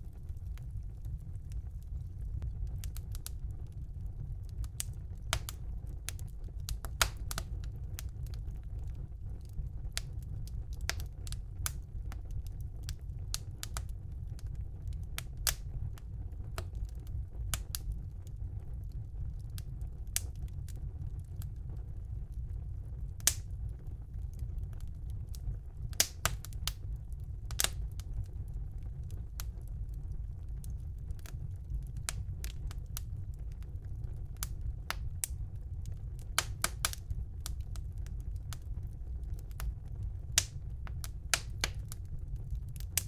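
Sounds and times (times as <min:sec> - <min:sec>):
fire crackling and popping: 0:00.0 - 0:43.0
low rumble of fire: 0:00.0 - 0:43.0.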